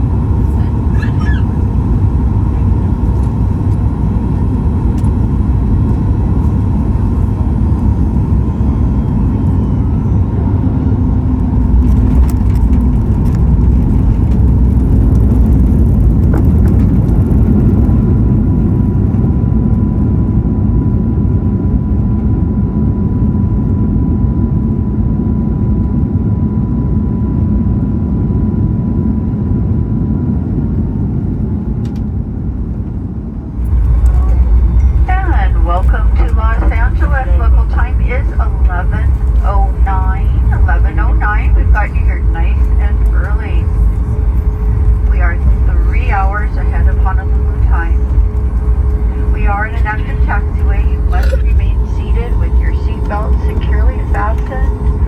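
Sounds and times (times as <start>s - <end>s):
airliner engine and airflow rumble: 0.0s - 55.0s
thin steady whine: 33.2s - 55.0s.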